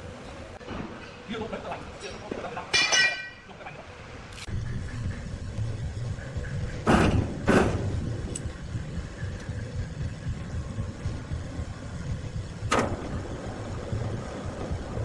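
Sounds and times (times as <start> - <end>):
motor rumbling: 4.1 - 15.0.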